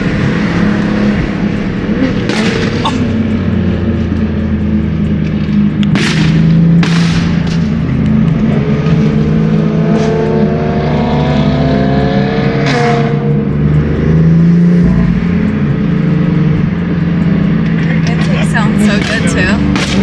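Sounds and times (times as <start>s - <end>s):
car engine accelerating hard: 0.0s - 20.0s
steady low drone: 0.0s - 20.0s
sharp crack: 2.2s - 3.4s, 5.4s - 8.0s, 19.0s - 20.0s.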